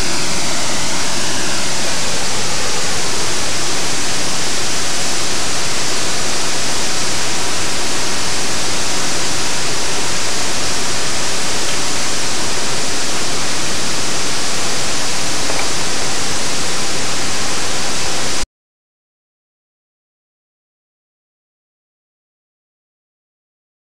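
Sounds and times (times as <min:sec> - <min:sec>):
waterfall rushing: 0:00.0 - 0:18.4.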